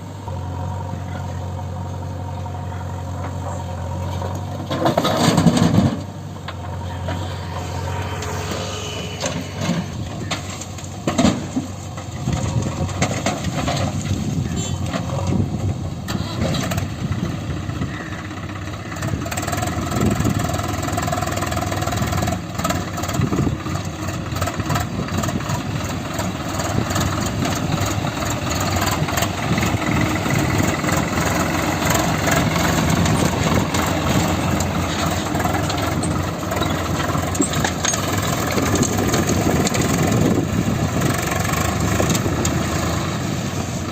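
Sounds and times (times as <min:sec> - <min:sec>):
diesel engine running: 0:00.0 - 0:43.9
engine knocks: 0:03.1 - 0:08.4, 0:09.2 - 0:43.1.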